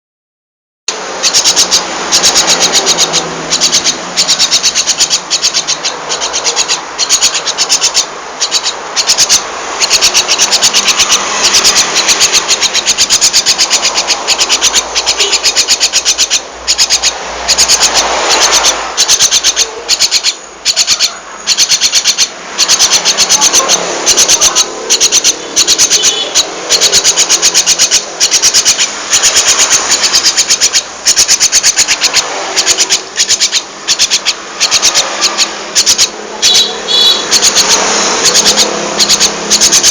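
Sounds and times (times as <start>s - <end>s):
young starling chattering: 0.9s - 39.9s.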